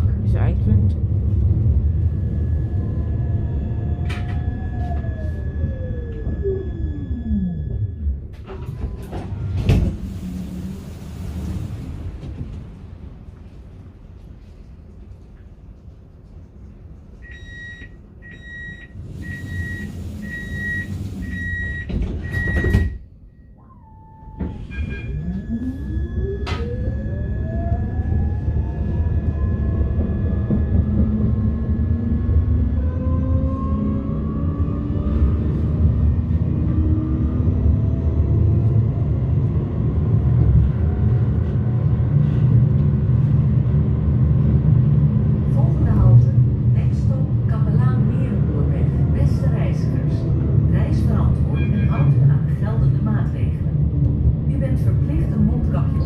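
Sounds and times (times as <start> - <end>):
tram rumbling on rails: 0.0 - 56.0
tram door warning beeps: 3.8 - 9.4, 17.2 - 28.2, 51.0 - 52.5.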